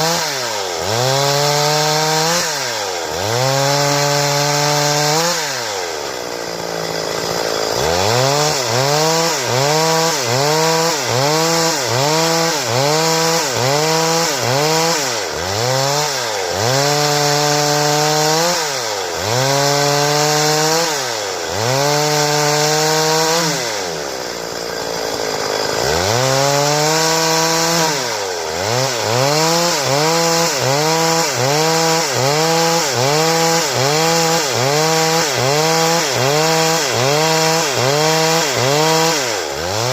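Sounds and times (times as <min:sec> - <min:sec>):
chainsaw sawing wood: 0:00.0 - 0:39.9.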